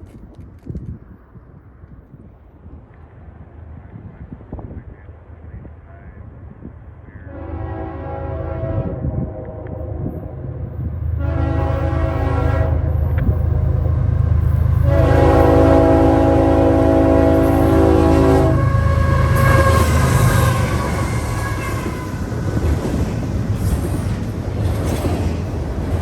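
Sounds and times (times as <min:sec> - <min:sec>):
low locomotive rumble: 0:00.0 - 0:26.0
wind buffeting microphone: 0:00.0 - 0:26.0
train air horn blasts: 0:07.2 - 0:13.5, 0:14.6 - 0:22.2.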